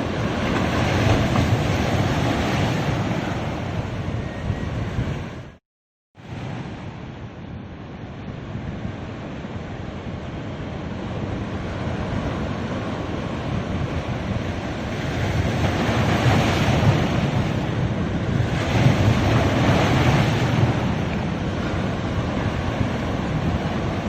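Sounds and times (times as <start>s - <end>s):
wind rumbling on microphone: 0.0s - 5.6s, 6.2s - 24.0s
waves washing onto beach: 6.2s - 24.0s.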